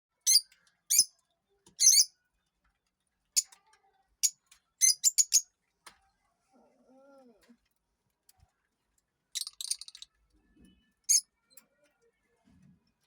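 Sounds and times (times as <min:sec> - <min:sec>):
parrot chirping: 0:00.3 - 0:01.1, 0:01.8 - 0:02.1, 0:04.8 - 0:05.4, 0:09.4 - 0:10.0.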